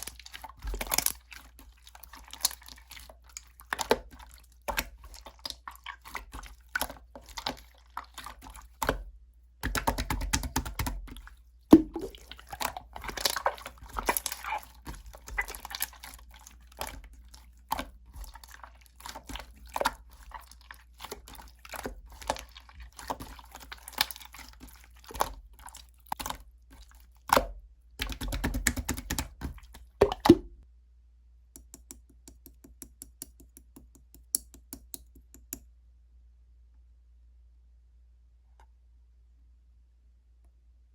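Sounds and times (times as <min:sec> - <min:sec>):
slime squelching: 0:00.0 - 0:30.6
air bubbles popping: 0:11.7 - 0:15.8, 0:29.9 - 0:30.5.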